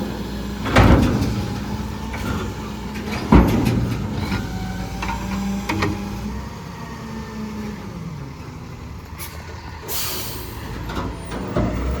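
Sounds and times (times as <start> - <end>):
diesel truck engine running: 0.0 - 12.0
air brake hiss: 9.2 - 10.8.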